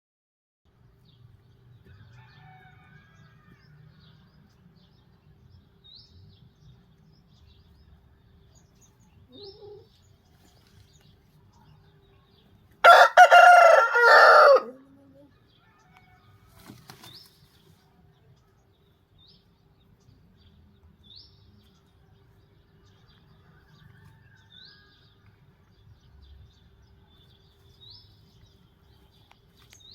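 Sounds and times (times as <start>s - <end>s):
rooster crowing: 1.9s - 3.8s, 12.8s - 14.8s.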